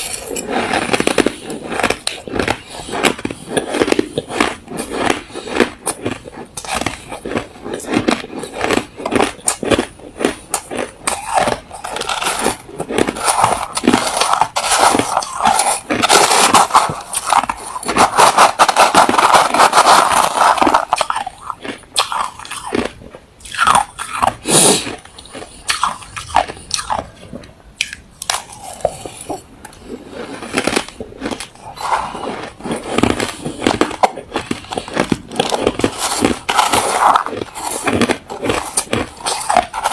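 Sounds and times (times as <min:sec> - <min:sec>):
chewing crushed ice: 0:00.0 - 0:39.9.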